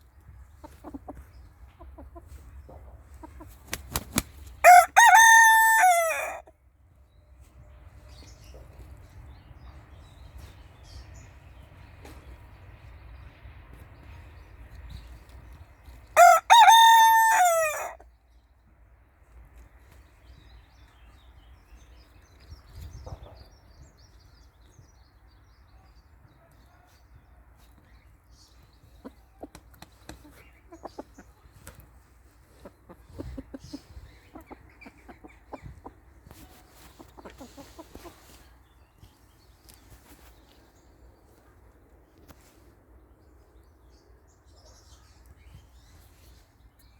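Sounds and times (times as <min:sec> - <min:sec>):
soft chicken clucks: 0:00.0 - 0:04.3, 0:19.4 - 0:42.7
rooster crowing: 0:04.6 - 0:06.4, 0:16.2 - 0:18.0.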